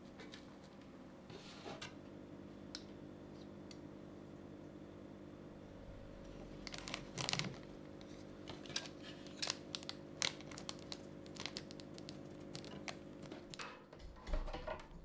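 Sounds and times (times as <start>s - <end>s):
steady low hum: 0.0s - 13.5s
paper crinkling and tearing: 6.6s - 13.7s.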